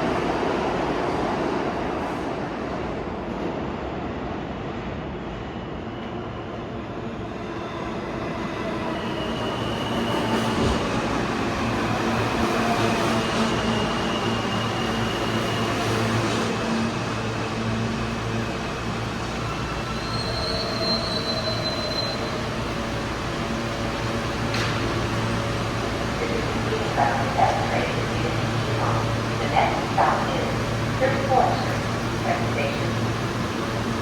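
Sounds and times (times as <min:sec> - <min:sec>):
subway train wheels rumbling: 0:00.0 - 0:34.0
high-pitched wheel squeals: 0:19.9 - 0:22.4.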